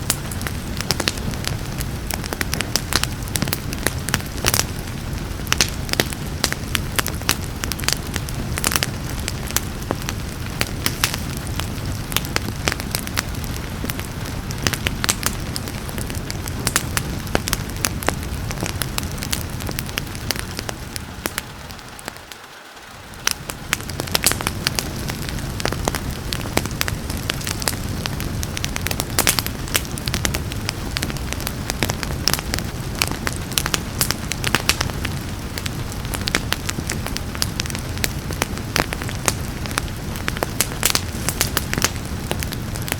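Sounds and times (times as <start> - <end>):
rain hiss: 0.0 - 42.9
wood fire crackling and popping: 0.0 - 42.9.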